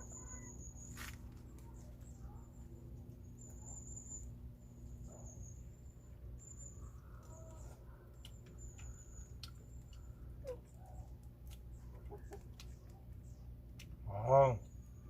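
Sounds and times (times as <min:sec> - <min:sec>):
low steady hum: 0:00.0 - 0:15.0
chickens clucking: 0:08.4 - 0:13.0.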